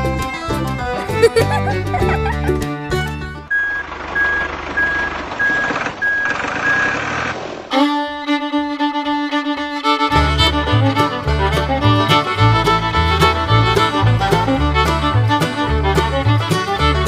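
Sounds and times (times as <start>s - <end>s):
bluegrass fiddle music: 0.0s - 3.5s, 7.7s - 17.0s
short high beeps: 3.5s - 7.0s.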